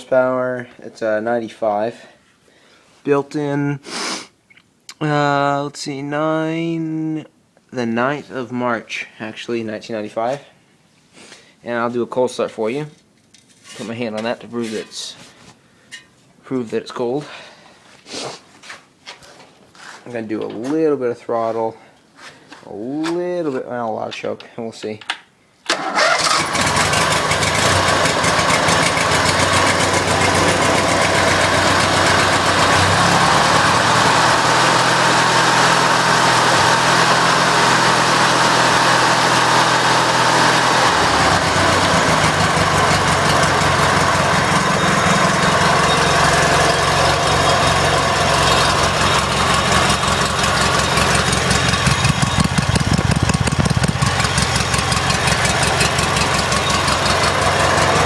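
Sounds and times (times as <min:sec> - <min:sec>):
engine starting and running loudly: 0:25.7 - 0:58.0.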